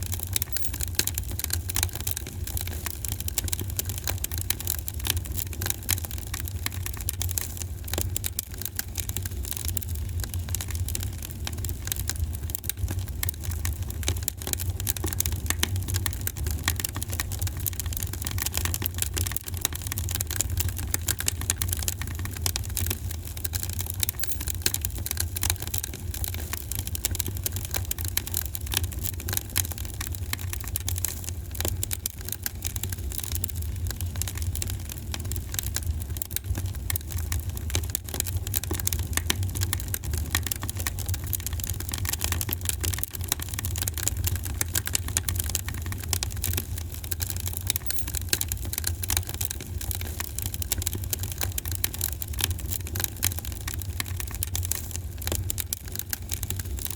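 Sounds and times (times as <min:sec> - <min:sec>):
wood fire crackling: 0:25.2 - 0:56.9.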